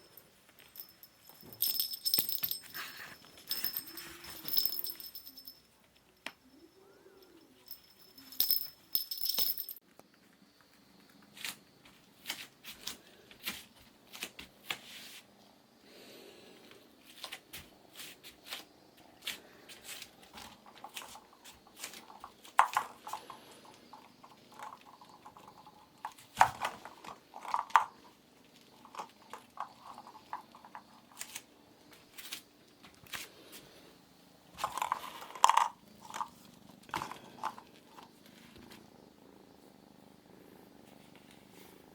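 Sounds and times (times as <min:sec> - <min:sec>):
ringing jingle: 0:00.0 - 0:05.8, 0:06.4 - 0:09.8
kittens playing with toys: 0:00.0 - 0:09.8, 0:16.6 - 0:39.0.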